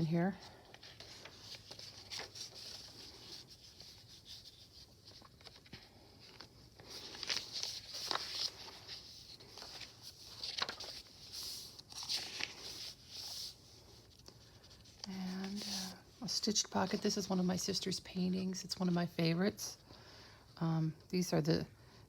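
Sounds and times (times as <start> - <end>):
paper pages rustling: 0.4 - 17.4.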